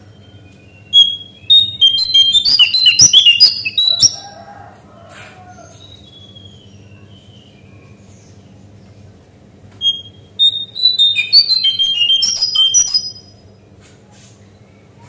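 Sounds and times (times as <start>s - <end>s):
bird whistled calls: 0.8s - 4.3s, 9.8s - 13.4s.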